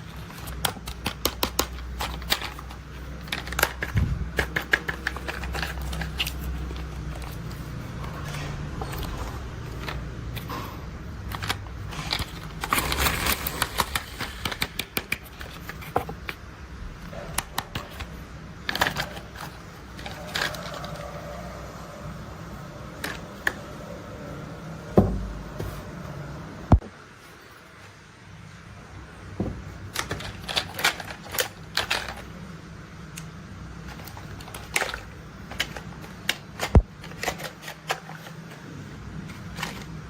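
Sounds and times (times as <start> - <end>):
plastic toys clicking and tapping: 0.0 - 10.6, 11.2 - 21.2, 29.9 - 32.4, 33.1 - 38.6.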